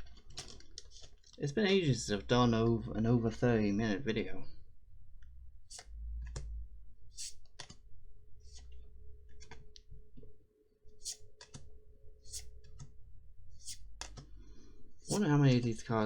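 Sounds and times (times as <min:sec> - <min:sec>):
cards clicking and swishing: 0:00.2 - 0:01.4, 0:05.7 - 0:06.5, 0:07.2 - 0:07.8, 0:11.0 - 0:11.7, 0:12.3 - 0:13.0, 0:13.6 - 0:14.4.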